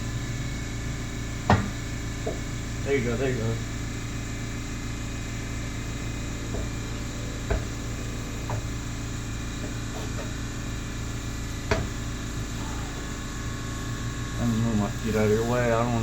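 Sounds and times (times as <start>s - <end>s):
steady background hum: 0.0s - 16.0s
knocks and rubs of exhaust pipe: 1.4s - 2.7s, 5.9s - 10.4s.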